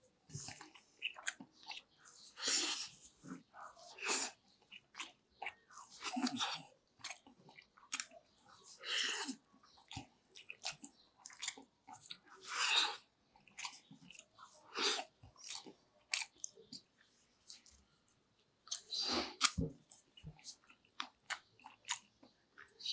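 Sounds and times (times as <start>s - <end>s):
person chewing: 0.2s - 22.9s.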